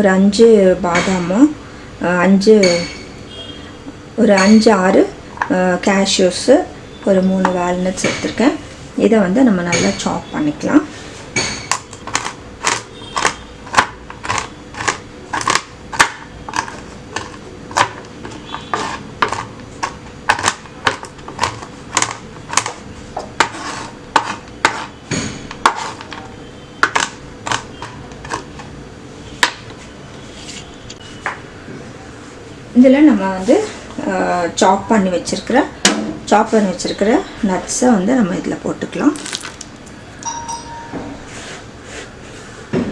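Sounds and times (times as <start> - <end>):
knife chopping nuts on board: 11.4 - 28.7.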